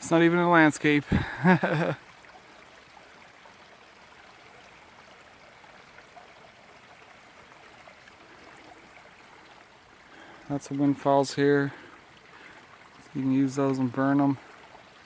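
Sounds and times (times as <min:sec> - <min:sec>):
stream flowing: 0:00.0 - 0:15.0.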